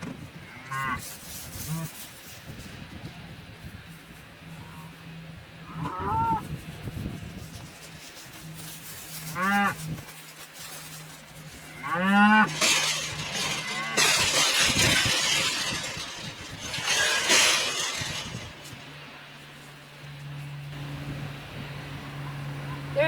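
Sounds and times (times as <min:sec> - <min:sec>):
harsh clattering noise: 0:11.0 - 0:19.0
cattle mooing: 0:11.6 - 0:14.1.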